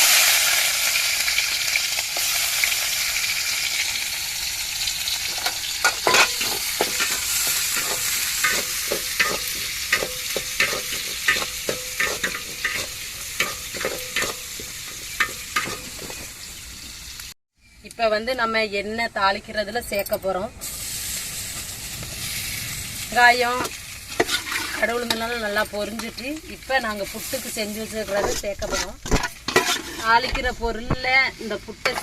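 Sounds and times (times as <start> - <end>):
onions sizzling in hot oil: 0.0 - 17.4, 20.6 - 32.0
utensil scraping a pan: 5.3 - 16.5, 23.6 - 26.5, 27.1 - 31.1, 31.8 - 32.0.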